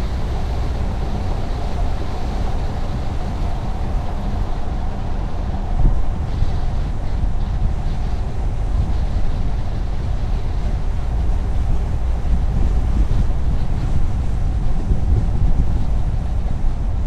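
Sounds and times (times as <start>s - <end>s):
car road rumble: 0.0s - 17.0s.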